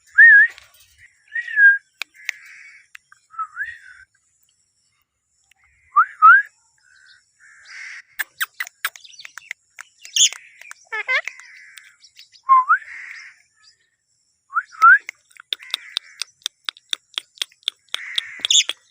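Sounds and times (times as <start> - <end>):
parakeet chattering: 8.2 - 11.9, 15.2 - 18.9
parakeet calling: 10.0 - 11.9, 15.5 - 16.4, 17.2 - 18.9
fast runs of clicks: 15.1 - 18.9.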